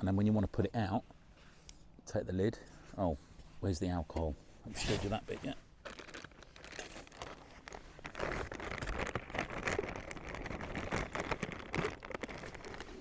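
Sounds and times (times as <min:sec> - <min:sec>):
rustling camping gear: 0:04.4 - 0:13.0.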